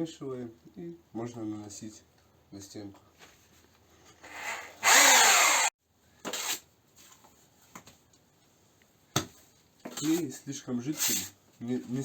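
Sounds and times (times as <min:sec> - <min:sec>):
electric drill mixing adhesive: 0:04.3 - 0:05.7.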